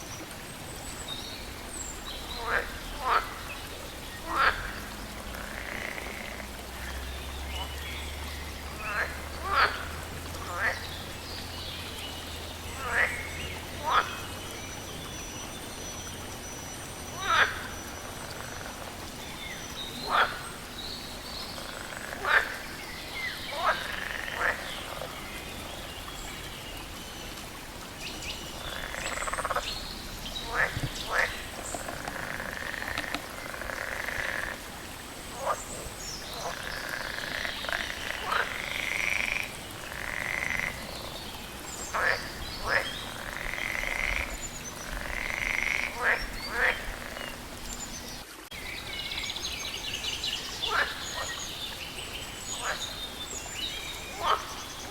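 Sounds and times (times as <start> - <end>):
background hiss: 0.0 - 54.9
frogs croaking: 0.0 - 54.9
raspy frog calls: 2.4 - 3.5, 4.2 - 7.0, 12.8 - 14.3, 17.2 - 19.0, 20.0 - 25.2, 28.6 - 29.7, 30.4 - 41.2, 41.9 - 47.9, 50.6 - 51.4, 52.5 - 53.2, 54.1 - 54.9.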